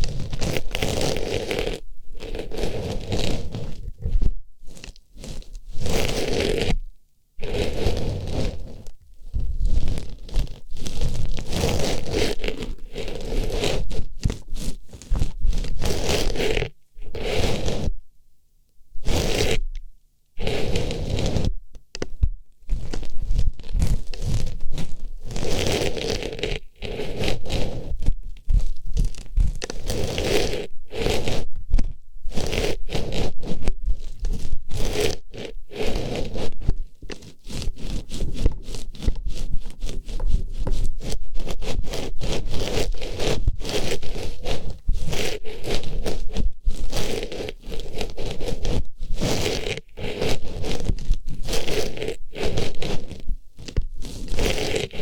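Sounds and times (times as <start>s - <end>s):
flower rustling on microphone: 20.4s - 55.0s.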